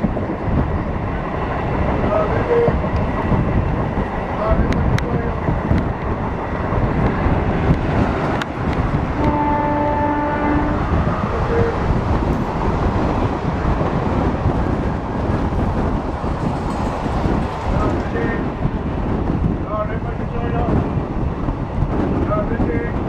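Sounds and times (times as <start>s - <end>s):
train rumbling on track: 0.0s - 23.0s
train horn: 9.2s - 11.8s.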